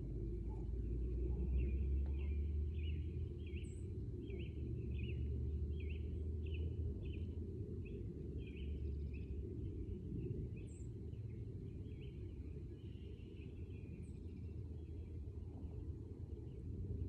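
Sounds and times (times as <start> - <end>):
low outdoor rumble: 0.0 - 17.0
small birds chirping: 1.4 - 9.3.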